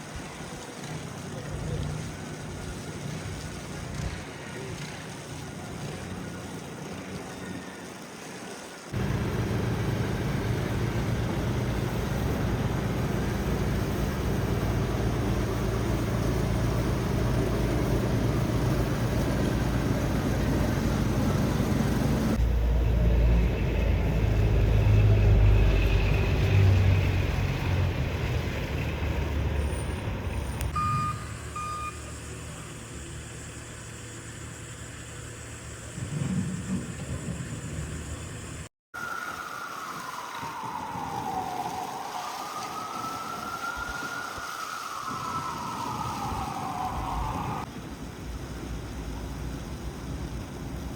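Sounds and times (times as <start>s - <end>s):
street noise: 0.0s - 39.1s, 42.6s - 50.9s
large vehicle engine drone: 9.0s - 38.7s
short beeps: 30.8s - 32.2s.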